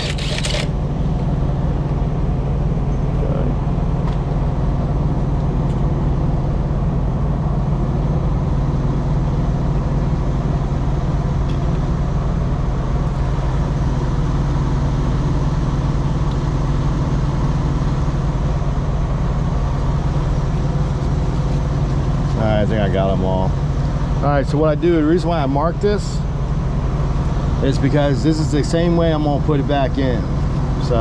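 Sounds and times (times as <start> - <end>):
diesel truck engine idling: 0.0 - 31.0.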